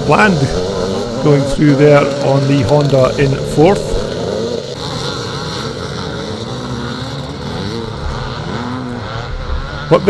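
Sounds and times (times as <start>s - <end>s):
motocross bikes revving: 0.0s - 10.0s.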